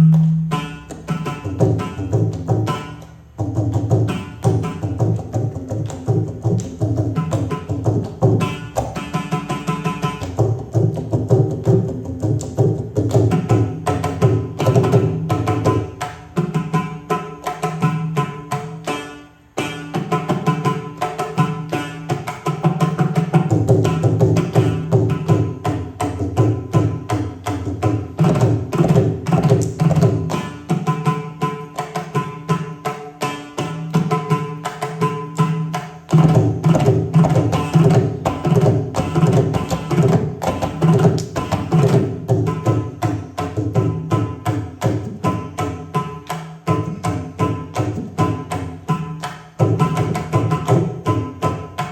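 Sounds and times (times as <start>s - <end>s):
hand drums playing fast rhythm: 0.0s - 51.9s.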